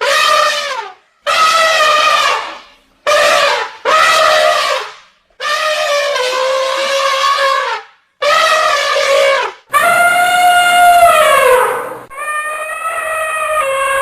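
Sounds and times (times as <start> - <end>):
elephant trumpeting: 0.0 - 14.0.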